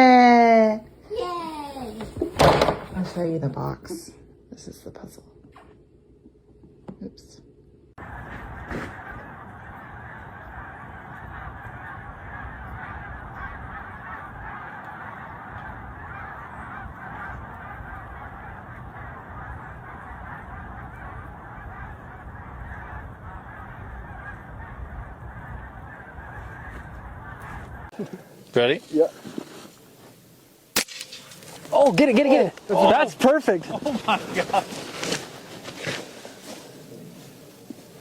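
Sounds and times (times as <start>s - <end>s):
flock of birds calling: 8.0s - 29.4s, 30.2s - 38.0s.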